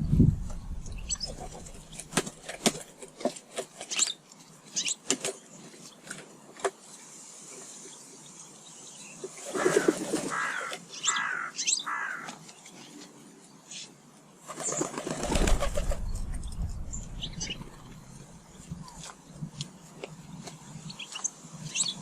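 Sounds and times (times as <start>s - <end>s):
small birds chirping: 0.0s - 2.6s, 6.8s - 22.0s
falling bird calls: 0.0s - 2.8s, 9.2s - 13.0s, 14.5s - 19.4s
wing flapping: 0.0s - 3.2s, 14.4s - 19.6s.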